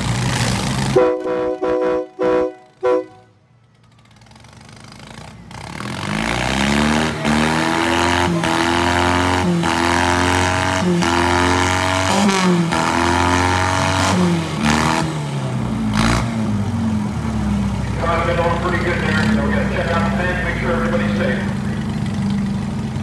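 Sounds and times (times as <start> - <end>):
car engines revving hard: 0.0 - 3.2, 3.9 - 23.0.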